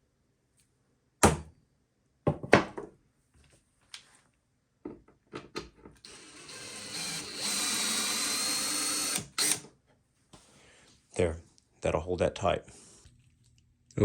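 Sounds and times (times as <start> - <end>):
cordless drill driving a screw: 6.0 - 9.7.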